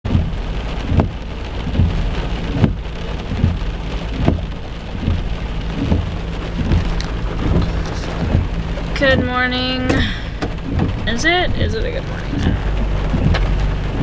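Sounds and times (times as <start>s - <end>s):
soft thumps: 0.1s - 11.1s
low steady rumble: 0.1s - 14.0s
steady rain falling: 0.1s - 14.0s.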